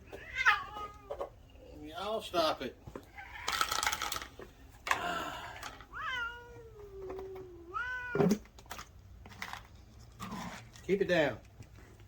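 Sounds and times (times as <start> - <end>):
cats meowing: 0.0 - 1.4, 3.0 - 3.9, 5.6 - 8.5.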